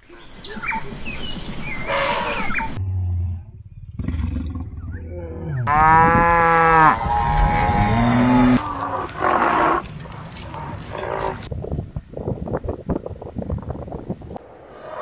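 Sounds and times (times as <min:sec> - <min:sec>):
cattle mooing: 0:05.4 - 0:11.5
lion growling: 0:06.8 - 0:11.5.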